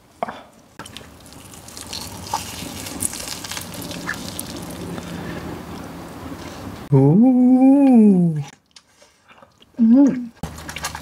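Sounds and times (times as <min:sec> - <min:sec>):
chewing crispy food: 0:00.7 - 0:06.7, 0:08.5 - 0:11.0
wet mouth sounds: 0:07.8 - 0:11.0.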